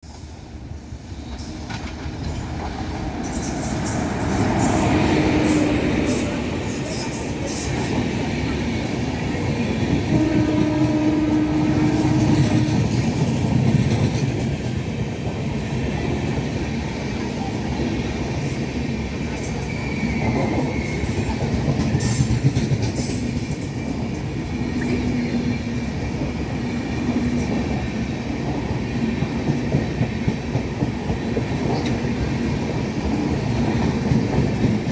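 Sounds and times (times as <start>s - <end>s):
train wheels clattering over rail joints: 1.2s - 15.4s, 19.1s - 26.4s.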